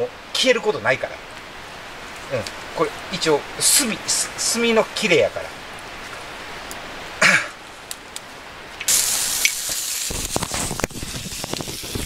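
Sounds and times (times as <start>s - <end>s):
person coughing: 7.2s - 7.6s
vegetables sizzling in a frying pan: 8.9s - 12.0s.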